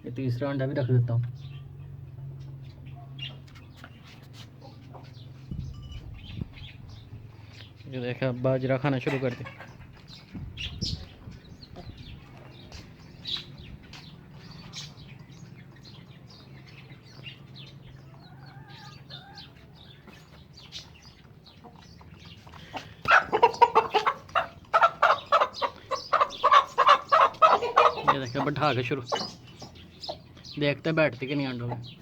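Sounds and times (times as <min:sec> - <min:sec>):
chickens clucking: 0:01.7 - 0:32.0
hen clucking rapidly: 0:08.6 - 0:32.0.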